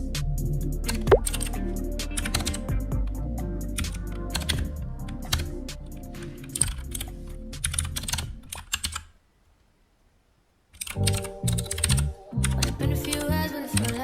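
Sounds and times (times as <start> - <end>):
music: 0.0 - 8.2, 11.0 - 14.0
rapid typing on keyboard: 2.2 - 2.7, 3.8 - 4.7, 5.3 - 5.5, 6.4 - 9.1, 10.8 - 14.0.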